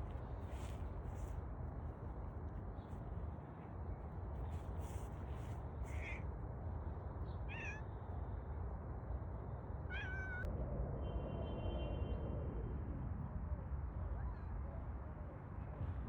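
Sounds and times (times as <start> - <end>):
steady low rumble: 0.0 - 6.8
cat meowing: 7.5 - 7.9, 9.9 - 10.5.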